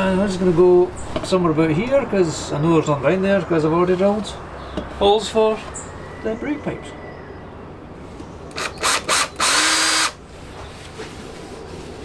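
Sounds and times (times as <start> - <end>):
power drill cutting steel: 8.5 - 10.2.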